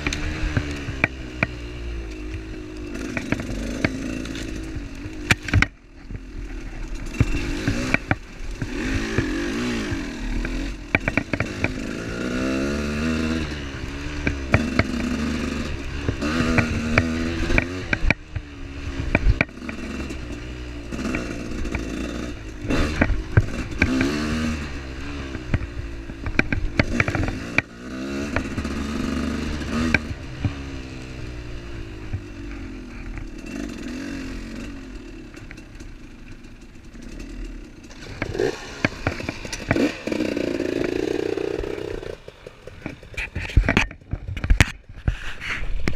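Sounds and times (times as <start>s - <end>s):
motorcycle rattling over bumps: 0.0s - 45.9s
off-road motorcycle engine: 0.0s - 45.9s.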